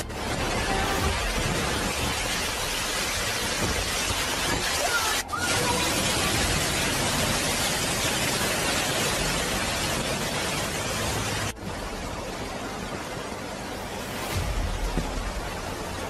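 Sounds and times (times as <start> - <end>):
car tyres spraying water: 0.0 - 11.6
heavy rain: 0.0 - 16.0.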